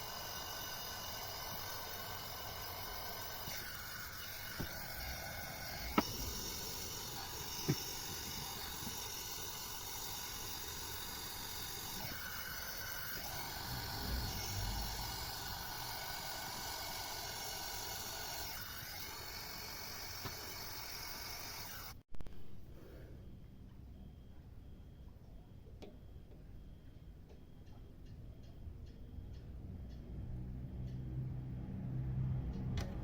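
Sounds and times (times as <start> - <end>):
gas torch hissing: 0.0 - 22.0.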